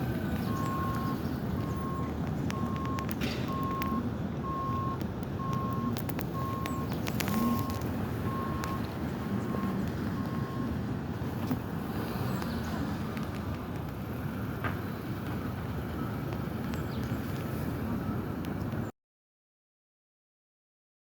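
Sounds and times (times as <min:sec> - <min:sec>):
electronic warning beeps: 0:00.4 - 0:10.8.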